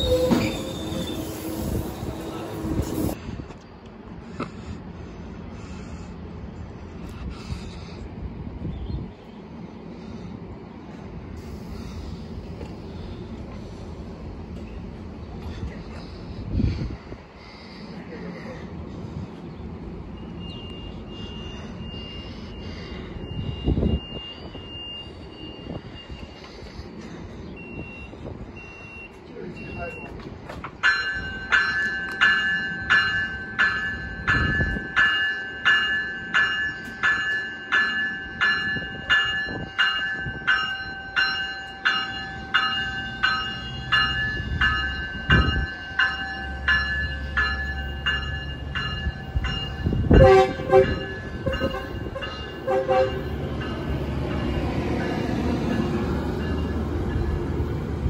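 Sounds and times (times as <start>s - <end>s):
train bell ringing: 0.0s - 3.2s, 27.6s - 30.1s, 30.8s - 58.0s
train rumbling: 0.0s - 58.0s
train horn blasts: 50.0s - 53.4s.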